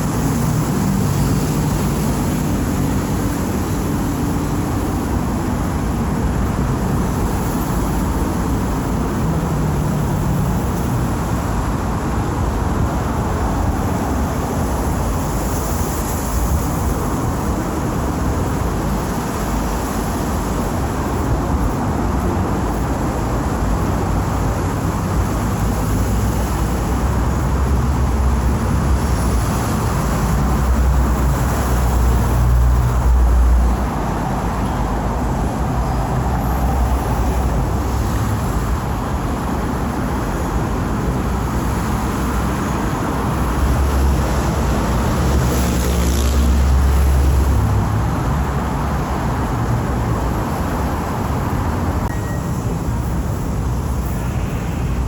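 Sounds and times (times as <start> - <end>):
vehicles passing: 0.0 - 55.0.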